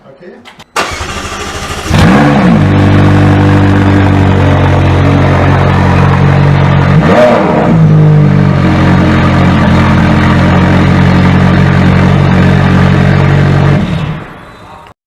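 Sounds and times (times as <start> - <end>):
sports car engine idling: 2.6 - 7.0, 7.7 - 13.8.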